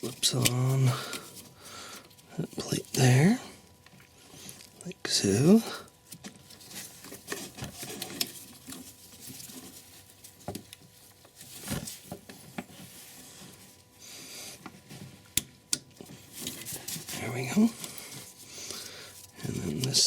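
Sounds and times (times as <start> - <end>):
parts scraping and rustling: 6.0 - 20.0.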